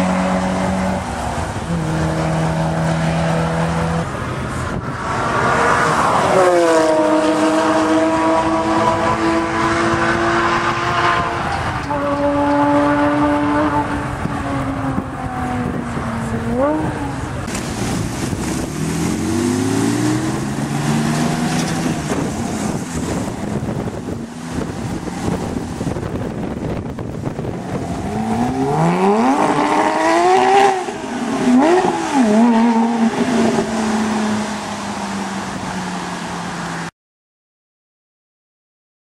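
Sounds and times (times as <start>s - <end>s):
car engine revving: 0.0s - 36.9s
rush of noise: 12.7s - 36.9s.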